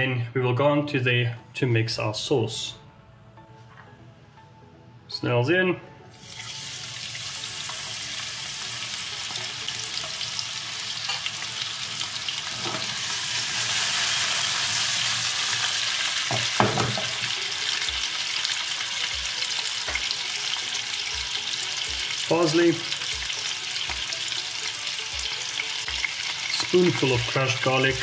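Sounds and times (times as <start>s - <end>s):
snails sizzling in hot oil: 6.2s - 28.0s
knock: 16.3s - 17.2s.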